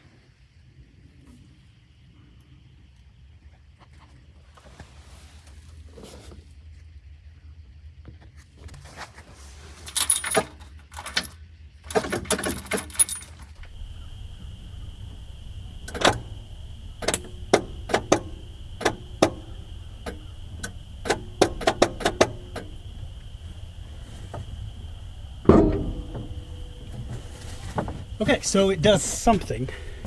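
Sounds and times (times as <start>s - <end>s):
keys jangling: 9.8s - 13.5s
key clicking in ignition switch: 9.9s - 13.4s.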